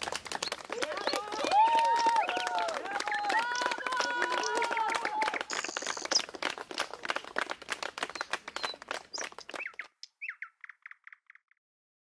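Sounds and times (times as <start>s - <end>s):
hand clapping: 0.0s - 10.0s
bird singing repeated notes: 3.1s - 6.4s, 8.1s - 11.6s
bird chirps: 3.4s - 6.4s, 8.1s - 11.6s.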